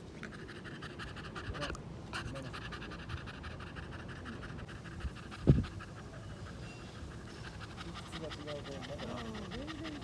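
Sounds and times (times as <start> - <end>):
dog panting: 0.0 - 10.0
low thump: 5.4 - 5.7.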